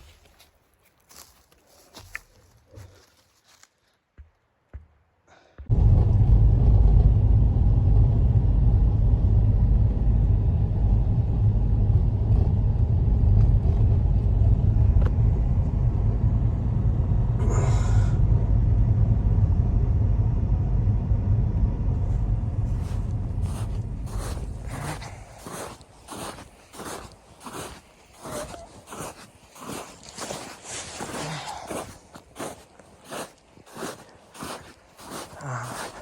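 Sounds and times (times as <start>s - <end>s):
wind buffeting microphone: 7.0s - 27.7s.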